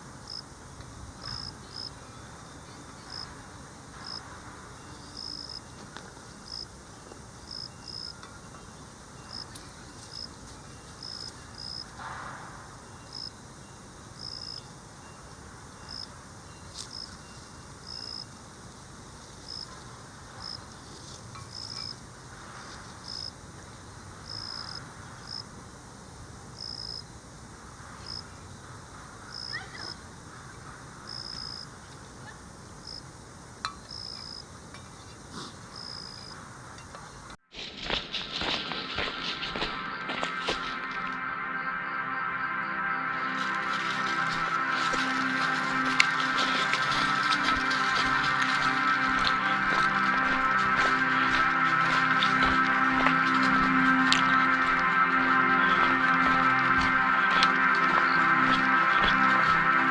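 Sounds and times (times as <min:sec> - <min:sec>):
faint steady insect trill: 0:00.0 - 0:37.4, 0:40.9 - 0:59.9
insect high chirps: 0:04.0 - 0:05.8, 0:06.4 - 0:22.2, 0:31.1 - 0:37.2.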